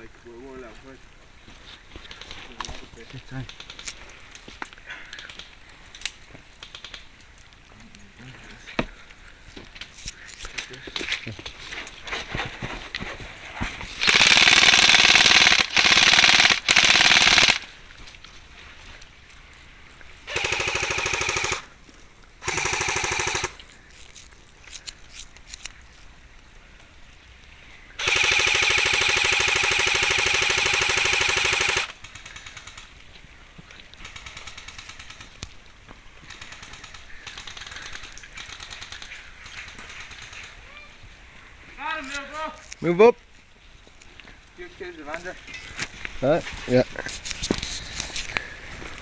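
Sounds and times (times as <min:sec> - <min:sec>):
airsoft guns firing bursts: 0:14.0 - 0:17.7, 0:20.3 - 0:21.7, 0:22.4 - 0:23.6, 0:28.0 - 0:32.9.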